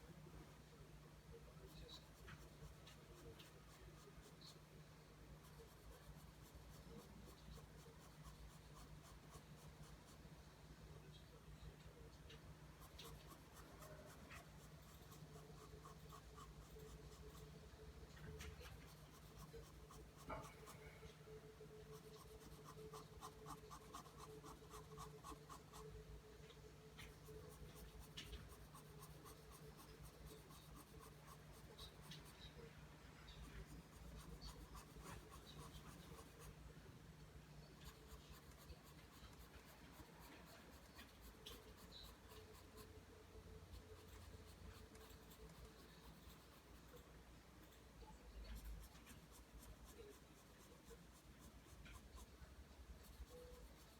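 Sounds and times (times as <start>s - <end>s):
pencil scratching on paper: 5.4s - 10.2s, 12.8s - 17.6s, 18.2s - 21.2s, 21.8s - 26.0s, 26.9s - 32.6s, 33.3s - 36.6s, 37.6s - 52.4s, 53.0s - 53.9s.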